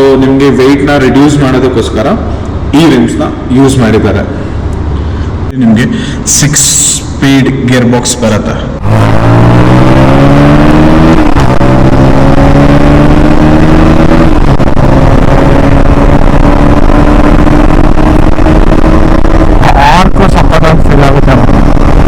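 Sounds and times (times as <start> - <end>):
motorcycle engine accelerating hard: 8.8 - 22.0.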